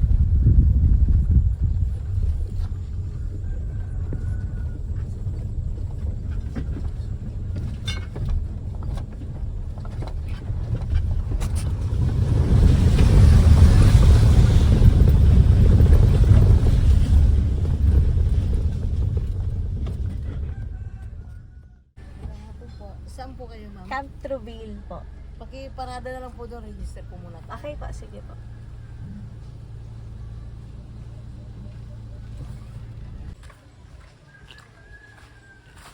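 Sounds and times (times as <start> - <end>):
car rumbling over rough track: 0.0 - 34.2
rushing noise: 11.2 - 21.4.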